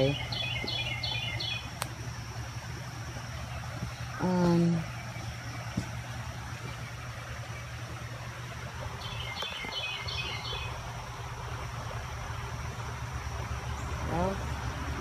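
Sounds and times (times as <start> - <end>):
bird chirping: 0.0 - 2.4, 3.1 - 8.1, 8.8 - 10.9
steady low rumble: 0.0 - 15.0.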